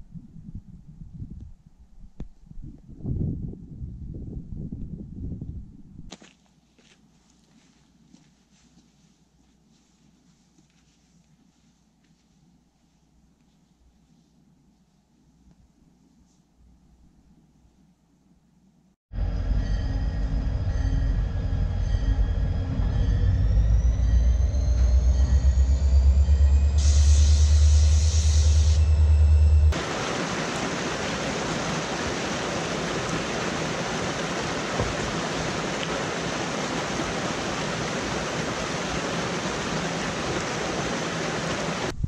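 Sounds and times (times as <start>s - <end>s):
train passing rumble: 19.1s - 41.9s
waterfall pouring into pool: 29.8s - 41.9s.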